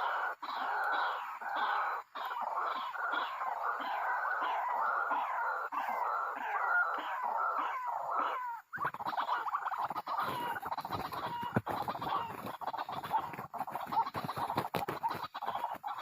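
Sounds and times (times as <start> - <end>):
waterhens clucking: 0.0 - 16.0
rustling: 10.0 - 16.0.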